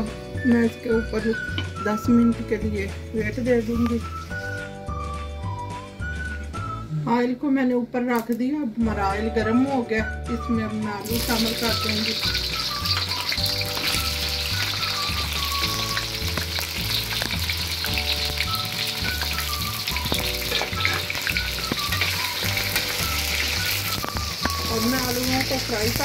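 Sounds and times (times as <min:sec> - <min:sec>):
potatoes sizzling in oil: 0:11.0 - 0:26.0.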